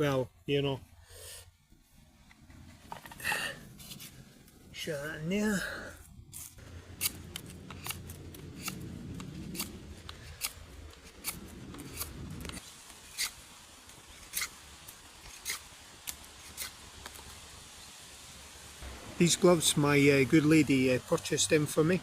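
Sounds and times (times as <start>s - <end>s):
low rumble: 6.0s - 12.6s
blade snipping wood: 6.4s - 12.6s, 14.2s - 14.5s, 15.2s - 17.2s.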